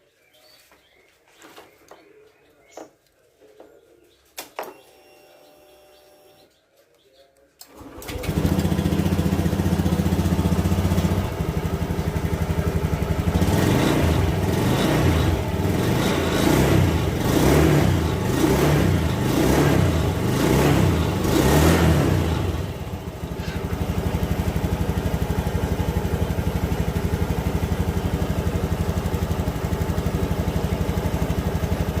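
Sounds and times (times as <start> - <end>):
scooter engine idling and revving: 7.7 - 32.0.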